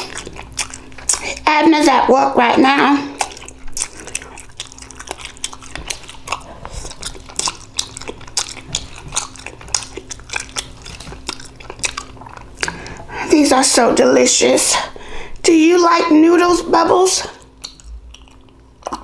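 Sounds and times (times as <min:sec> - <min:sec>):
lip smacking: 0:00.0 - 0:01.4, 0:03.0 - 0:13.2, 0:17.2 - 0:19.0
wet chewing: 0:00.0 - 0:13.2, 0:17.3 - 0:19.0.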